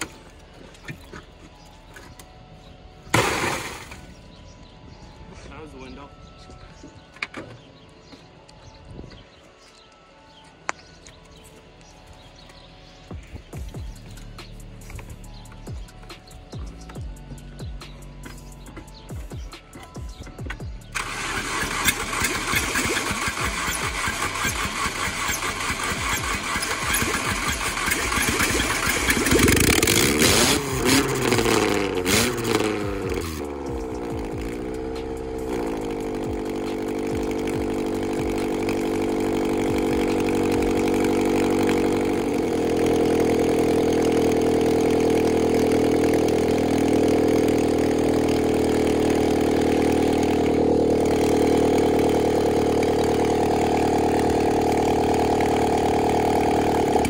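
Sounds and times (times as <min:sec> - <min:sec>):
car engine running: 0:13.1 - 0:57.0.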